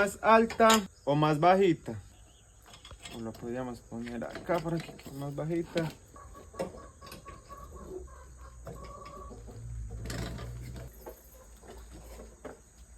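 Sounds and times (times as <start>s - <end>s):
chicken clucking: 5.2s - 12.8s.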